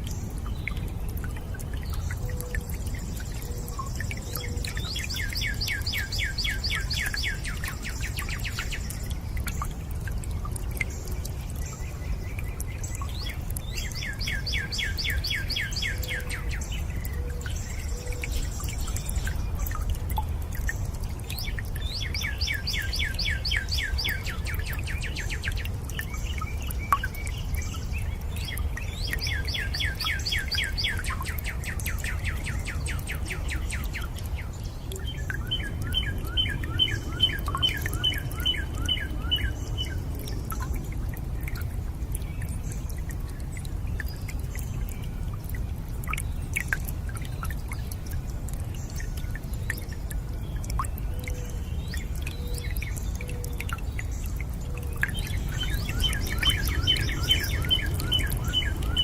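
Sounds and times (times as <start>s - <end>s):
low rush of water: 0.0s - 59.0s
water drips: 0.0s - 59.0s
bird singing fast trill: 55.1s - 59.0s.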